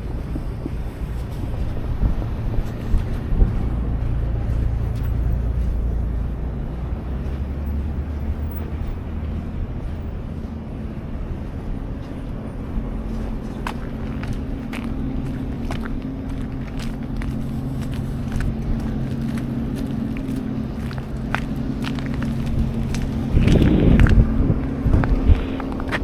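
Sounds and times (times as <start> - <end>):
road traffic rumble: 0.0 - 26.0
wind buffeting microphone: 0.0 - 26.0.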